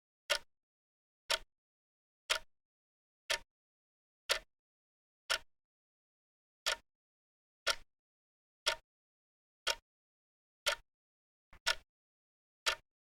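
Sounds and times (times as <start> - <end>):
clock ticking: 1.3 - 1.5, 2.3 - 2.5, 3.3 - 3.5, 4.3 - 4.5, 8.6 - 8.8, 11.6 - 11.8, 12.6 - 12.8.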